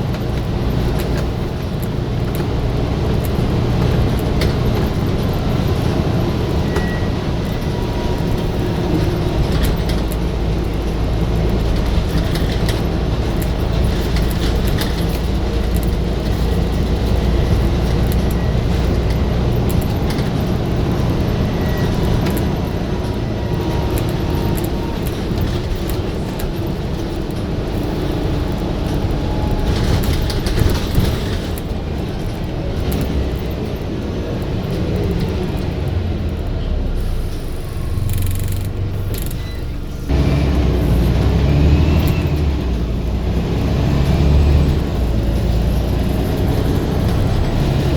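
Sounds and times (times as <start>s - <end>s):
bus diesel engine rumbling: 0.0s - 47.9s
rattles and clicks: 0.0s - 47.9s.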